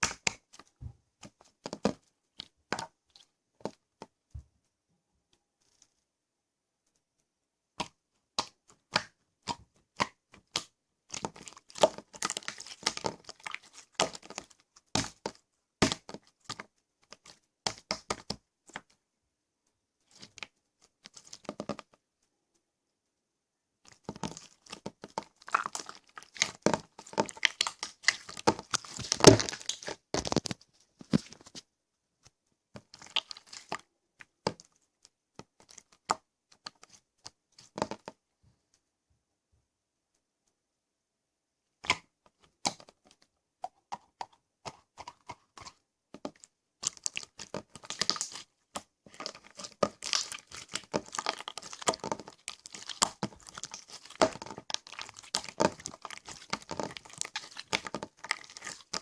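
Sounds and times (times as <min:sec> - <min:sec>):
slime squeezed by hand crackling: 0:23.9 - 0:31.5, 0:32.8 - 0:33.8, 0:46.8 - 0:48.5, 0:49.1 - 0:59.0.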